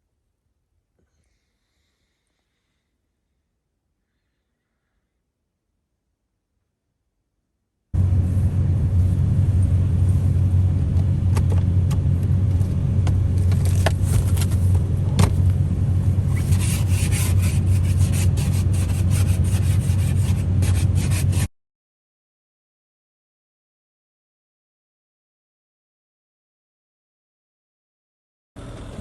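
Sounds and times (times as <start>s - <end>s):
vehicle driving rumble: 8.0s - 21.5s.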